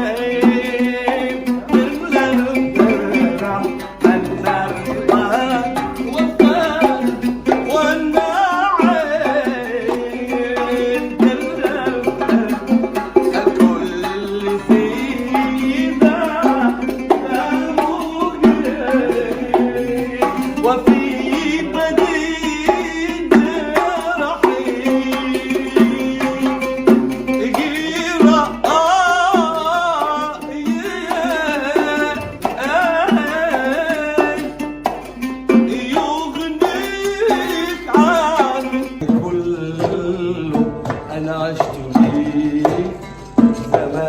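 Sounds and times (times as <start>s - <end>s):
hand drum strokes: 0.0s - 44.0s
instrumental melody: 0.0s - 44.0s
ornamented melodic tune: 1.6s - 10.2s.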